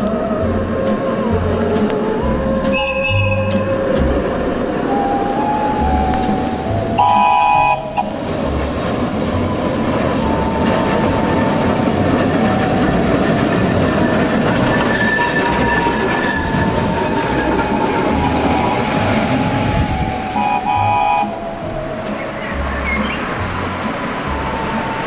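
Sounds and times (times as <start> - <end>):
rail vehicle rumbling on track: 0.0 - 25.0
train horn toot: 4.9 - 8.2, 19.6 - 21.5.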